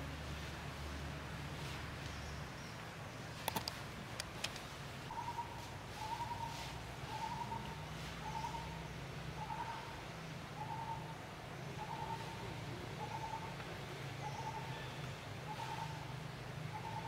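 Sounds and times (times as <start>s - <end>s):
sharp click: 3.4s - 4.7s.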